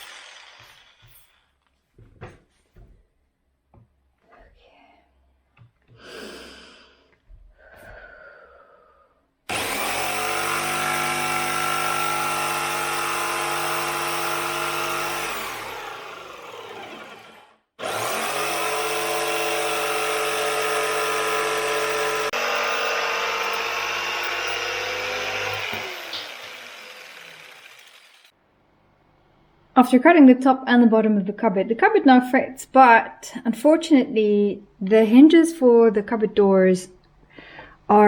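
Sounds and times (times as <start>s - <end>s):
electric power saw cutting: 0.0s - 1.4s, 9.5s - 28.3s.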